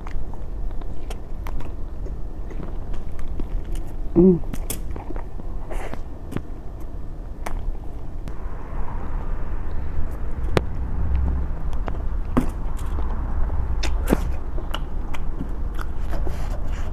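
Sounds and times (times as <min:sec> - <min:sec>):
chewing and mouth sounds: 0:00.0 - 0:08.1
steady low rumble: 0:00.0 - 0:16.9
short vocal sound: 0:04.1 - 0:04.5.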